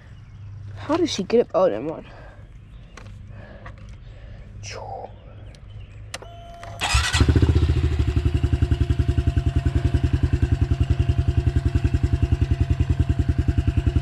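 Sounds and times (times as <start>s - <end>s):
dirt bike engine idling: 6.8s - 14.0s.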